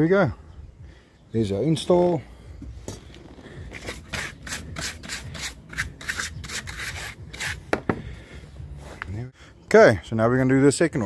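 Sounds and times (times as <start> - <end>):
rapid rubbing strokes: 3.7 - 7.6.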